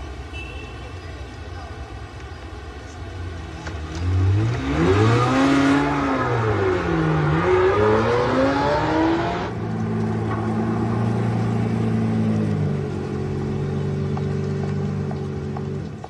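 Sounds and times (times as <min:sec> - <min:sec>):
car engine revving: 0:03.3 - 0:16.0.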